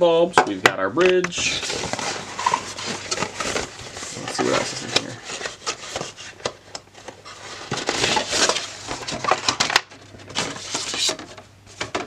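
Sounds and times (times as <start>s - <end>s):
packaging crinkling and rustling: 1.2s - 12.0s.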